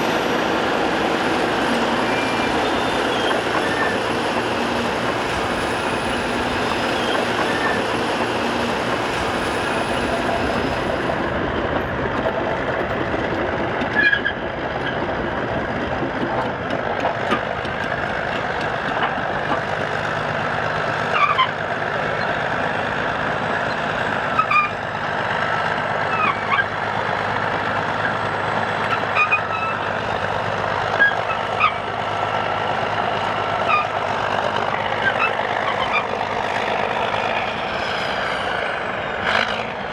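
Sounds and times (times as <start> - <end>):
steel track squeaks: 0.0 - 12.3, 13.8 - 15.1, 21.1 - 22.6, 23.7 - 24.9, 26.1 - 26.8, 27.9 - 30.2, 30.8 - 39.7
bulldozer diesel engine clattering: 0.0 - 39.9.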